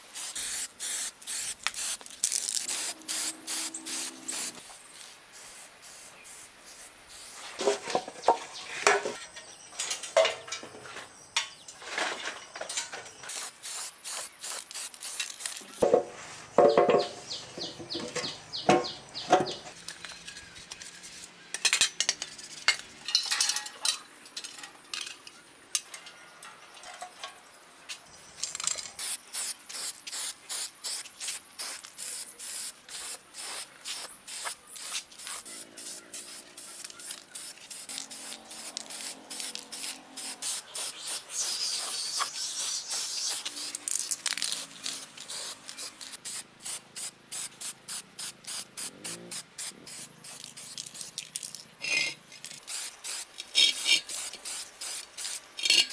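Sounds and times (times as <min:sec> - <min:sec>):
abrasive scraping strokes: 0:02.6 - 0:04.6.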